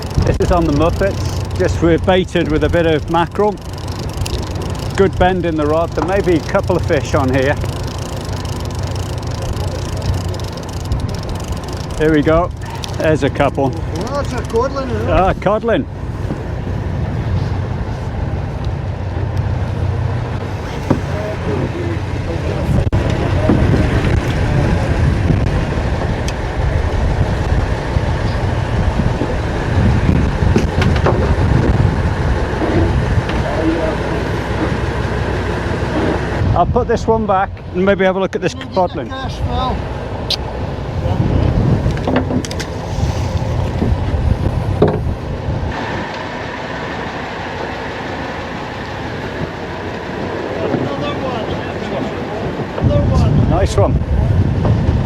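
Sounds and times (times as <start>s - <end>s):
wind buffeting microphone: 0.0s - 55.0s
clicks and knocks on boat: 22.9s - 24.5s, 30.4s - 31.9s, 41.8s - 44.0s, 44.7s - 45.2s.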